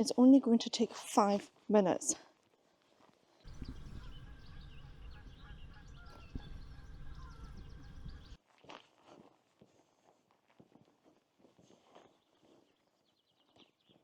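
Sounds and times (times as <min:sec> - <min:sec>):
low steady rumble: 0:03.5 - 0:08.4
small birds chirping and trilling: 0:03.5 - 0:08.4.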